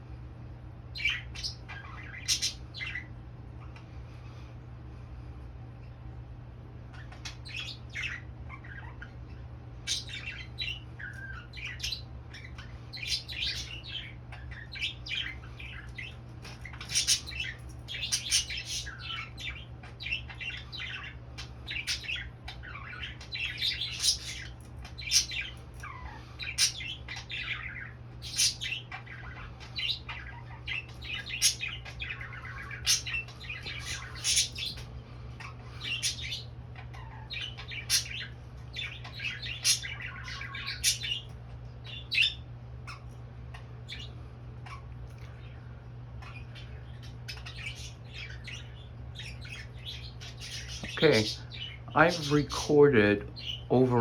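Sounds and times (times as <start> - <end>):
steady low hum: 0.0 - 54.0
budgerigars chattering and squawking: 0.9 - 3.9, 6.9 - 54.0.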